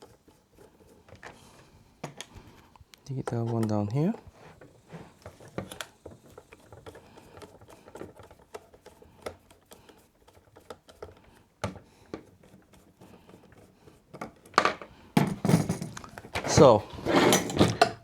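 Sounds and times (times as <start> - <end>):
reel parts clattering: 14.5 - 18.0.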